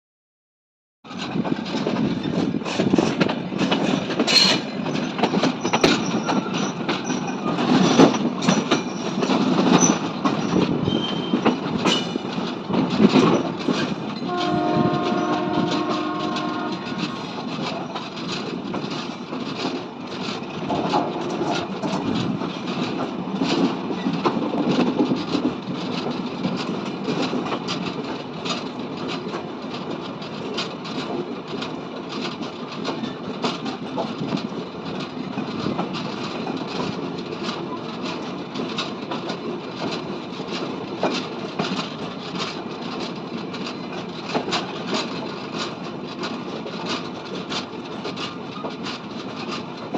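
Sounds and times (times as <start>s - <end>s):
train rumbling past: 1.1s - 49.9s
wheels clicking over rail joints: 1.1s - 49.9s
train horn: 14.3s - 17.2s.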